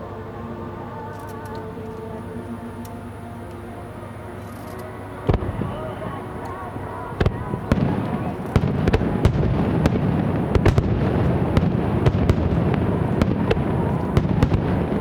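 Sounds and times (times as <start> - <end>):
fireworks bursting with sharp cracks: 5.3 - 15.0
low rumble of explosions: 5.3 - 15.0.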